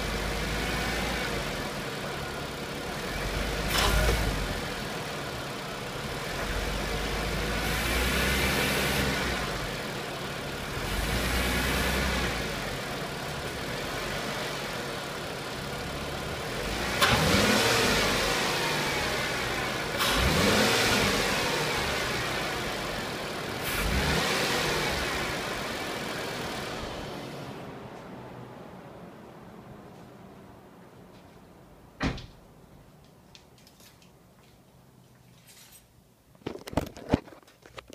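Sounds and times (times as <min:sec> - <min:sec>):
car engine revving: 0:00.0 - 0:27.8.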